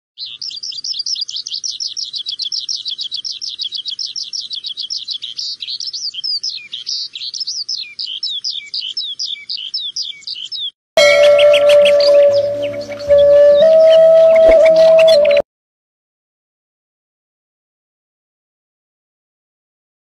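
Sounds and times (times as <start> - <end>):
songbird singing: 0.2 - 15.4.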